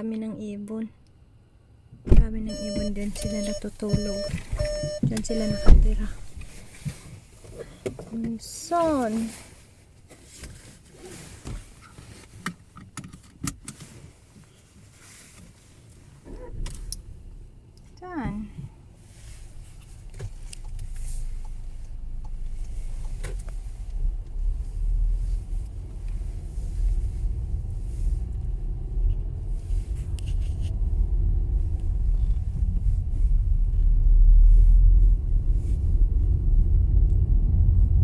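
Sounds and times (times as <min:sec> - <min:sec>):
car engine and road rumble: 0:00.0 - 0:38.0.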